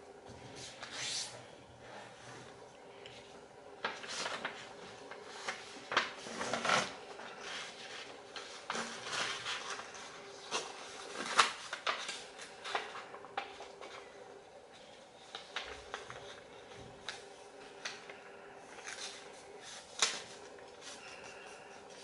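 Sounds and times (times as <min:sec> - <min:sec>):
paper rustling and crinkling: 0:03.2 - 0:22.0.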